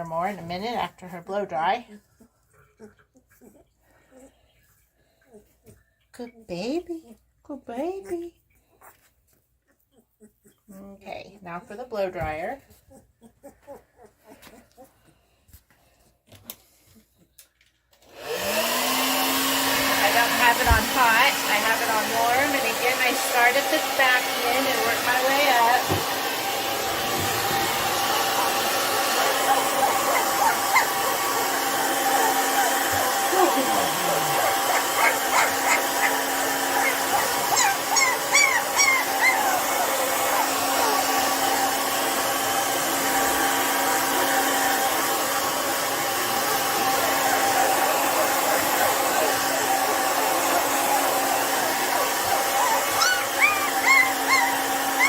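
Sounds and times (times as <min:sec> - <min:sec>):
puppy whimpering: 0:02.0 - 0:05.8, 0:08.1 - 0:10.9, 0:12.6 - 0:15.2, 0:26.9 - 0:41.7, 0:46.4 - 0:55.0
hair dryer motor hum: 0:18.0 - 0:55.0.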